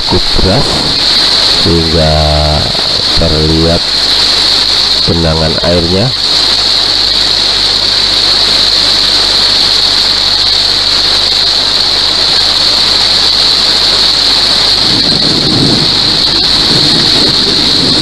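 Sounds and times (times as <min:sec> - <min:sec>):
low rumble: 0:00.0 - 0:03.4
heavy rain on pavement: 0:00.0 - 0:18.0.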